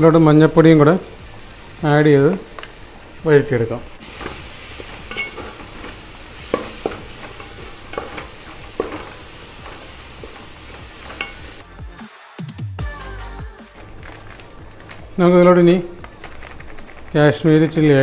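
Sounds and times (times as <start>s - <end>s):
onions sizzling in oil: 0.0s - 11.7s
spatula scraping pan: 4.0s - 11.6s.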